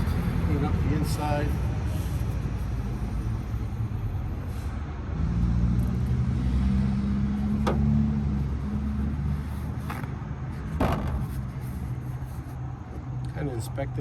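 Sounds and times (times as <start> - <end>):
vehicle engine running: 5.8 - 13.2.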